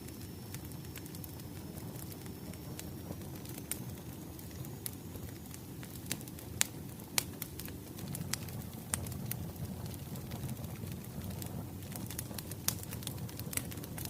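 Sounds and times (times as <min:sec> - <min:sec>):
firewood crackling and popping: 0:00.0 - 0:14.0
low fire rumble: 0:00.0 - 0:14.0.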